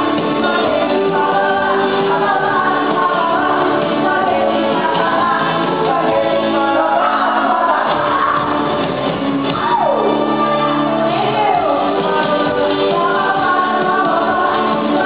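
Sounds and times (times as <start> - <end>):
live band with singing: 0.0 - 15.0.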